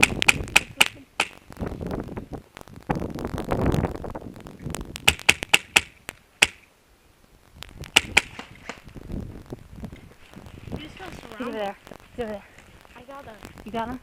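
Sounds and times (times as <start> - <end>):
airsoft gun shots: 5.0 - 6.6, 7.9 - 8.8.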